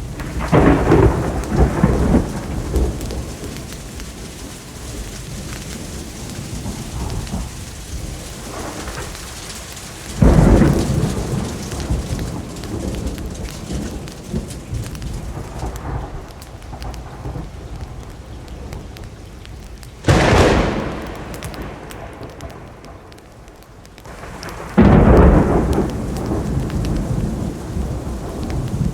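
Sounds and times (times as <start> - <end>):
steady rainfall: 0.0 - 28.9
thunder claps: 0.0 - 28.9.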